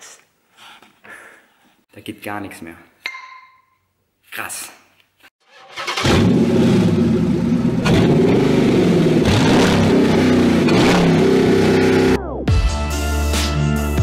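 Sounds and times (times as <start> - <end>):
car engine revving and accelerating: 6.0 - 12.2.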